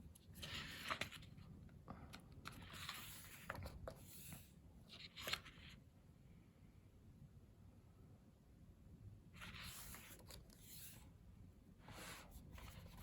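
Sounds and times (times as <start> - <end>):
paper pages rustling: 0.2 - 1.5, 2.4 - 5.8, 9.4 - 11.0, 12.4 - 13.0.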